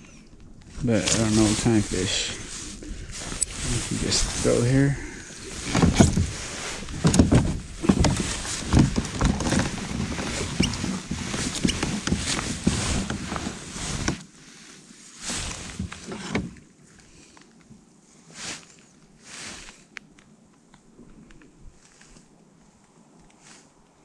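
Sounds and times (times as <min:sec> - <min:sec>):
knocking and clicking handling noise: 0:05.4 - 0:14.2.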